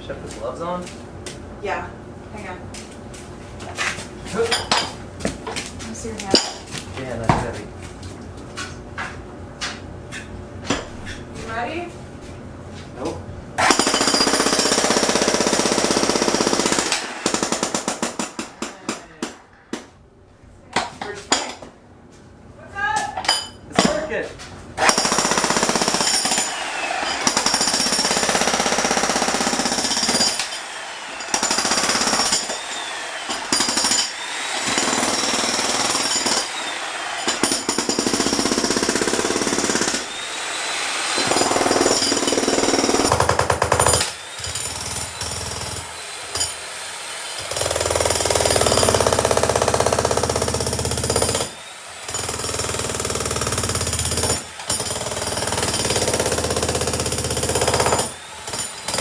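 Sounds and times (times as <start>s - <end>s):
breaker hammer pounding concrete: 13.6s - 19.9s, 24.8s - 40.2s, 41.2s - 46.7s, 47.4s - 59.0s.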